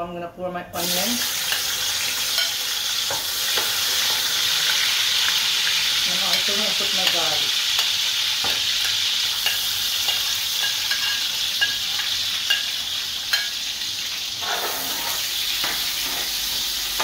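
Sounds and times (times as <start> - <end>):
onions sizzling in hot oil: 0.8 - 17.0
spoon scraping in pan: 1.4 - 5.0, 6.2 - 13.7, 14.3 - 17.0
metal spoon tapping: 6.3 - 8.6, 9.4 - 12.7.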